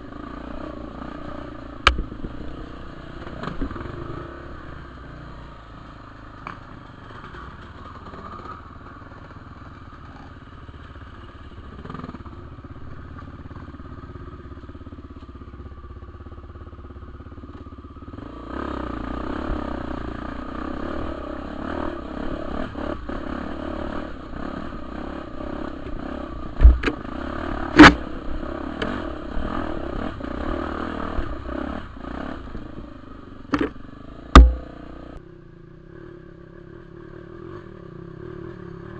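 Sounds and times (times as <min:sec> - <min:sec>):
motorcycle engine revving: 0:00.0 - 0:35.2
bike knocking over rough ground: 0:26.6 - 0:27.0.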